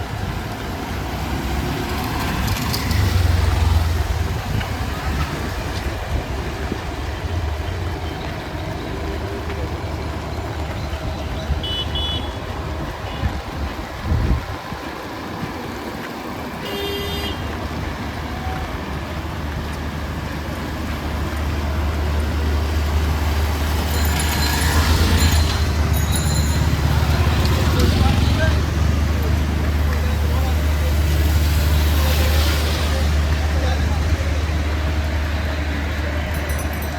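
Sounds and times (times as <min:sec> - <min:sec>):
nearby engine low rumble: 0:00.0 - 0:36.9
vehicle engines running: 0:00.0 - 0:36.9
car horn toots: 0:11.6 - 0:12.4, 0:16.6 - 0:17.5.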